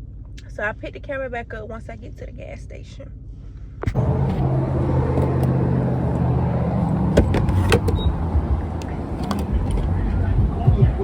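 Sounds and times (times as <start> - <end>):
car engine humming: 3.2 - 11.0.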